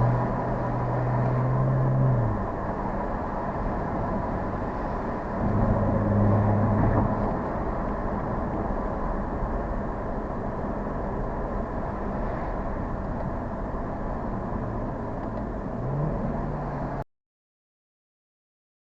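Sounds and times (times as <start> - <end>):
car engine running: 0.0 - 17.0
road noise: 0.0 - 17.1.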